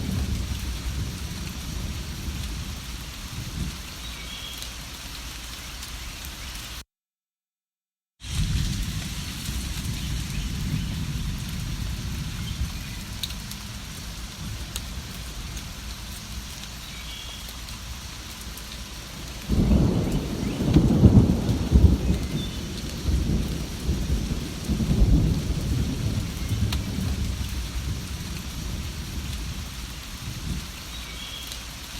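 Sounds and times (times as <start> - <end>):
rolling thunder: 0.0 - 3.8, 8.2 - 16.0, 19.1 - 30.7
steady rain: 0.0 - 6.8, 8.2 - 31.9.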